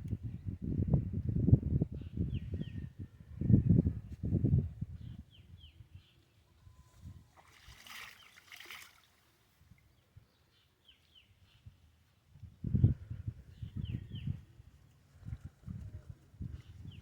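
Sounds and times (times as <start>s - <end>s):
water splashing and sloshing: 7.3s - 9.3s.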